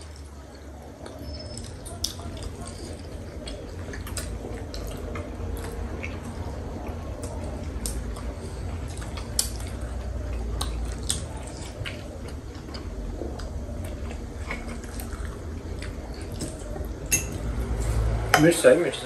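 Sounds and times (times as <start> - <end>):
people chewing dumplings: 0.0 - 18.3
low steady hum: 0.0 - 19.0
forks clicking on plates: 17.1 - 17.5.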